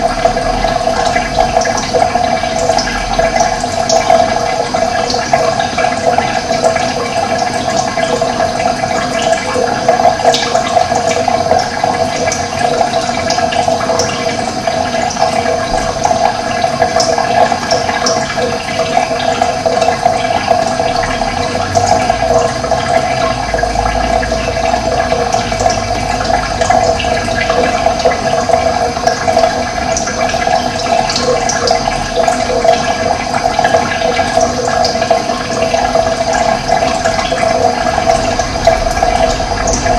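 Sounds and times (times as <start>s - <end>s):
running water rushing: 0.0s - 39.9s
low rumble: 37.8s - 39.9s.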